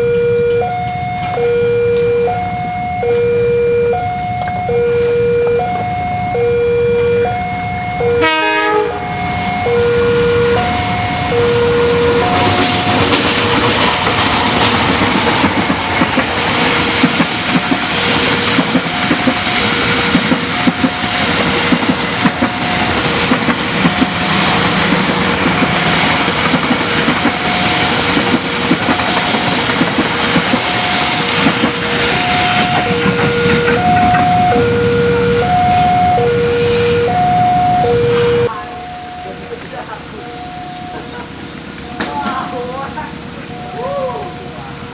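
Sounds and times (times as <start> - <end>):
train wheels clattering over rails: 10.4 - 34.8
level crossing two-note chime: 43.4 - 44.5.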